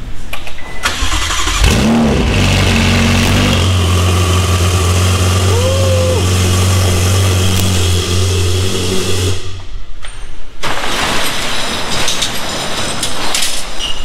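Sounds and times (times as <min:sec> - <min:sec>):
car engine idling: 0:01.0 - 0:09.6.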